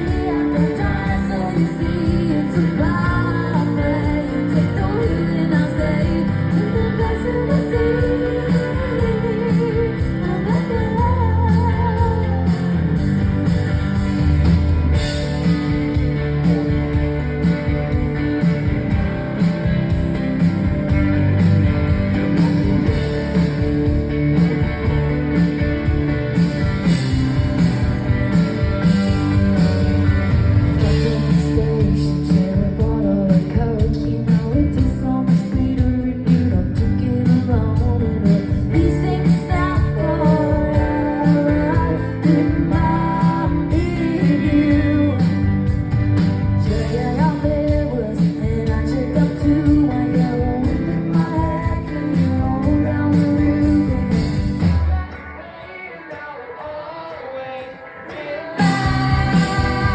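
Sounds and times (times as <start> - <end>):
woman singing: 0.0 - 13.1, 30.7 - 45.8, 46.6 - 59.9
rock band playing: 0.0 - 59.9.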